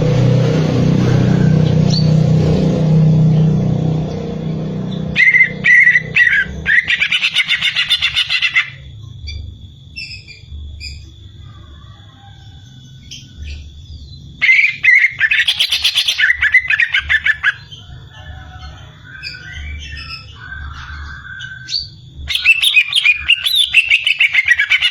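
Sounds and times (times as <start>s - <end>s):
bird chattering song: 5.2s - 11.2s, 13.0s - 18.0s, 18.7s - 24.9s.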